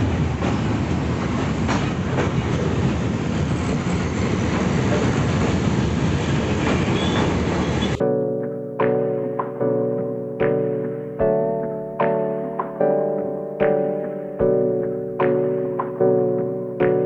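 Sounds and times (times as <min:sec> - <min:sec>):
train rumble: 0:00.0 - 0:08.0
wheels clacking over rail joints: 0:00.2 - 0:05.7
instrumental music: 0:08.0 - 0:17.0.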